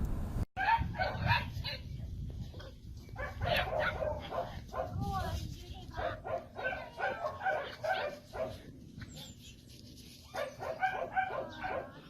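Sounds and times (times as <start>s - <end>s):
dog barking: 0.6s - 1.8s, 3.2s - 5.1s, 6.0s - 8.6s, 10.3s - 12.0s.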